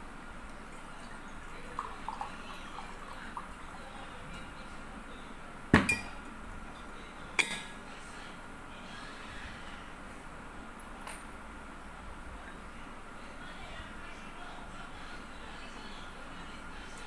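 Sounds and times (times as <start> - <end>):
kitchenware knocking: 5.8 - 6.2
kitchenware clinking: 5.8 - 6.3.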